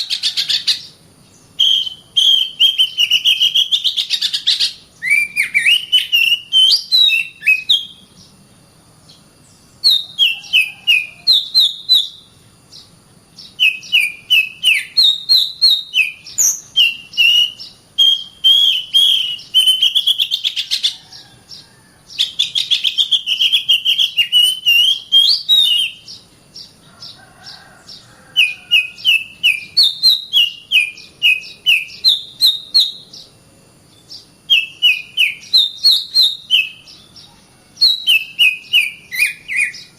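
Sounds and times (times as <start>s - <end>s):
bird whistling sharp notes: 1.6s - 8.0s, 13.6s - 20.8s, 22.2s - 26.1s, 28.4s - 33.0s, 34.5s - 36.9s, 37.8s - 39.9s.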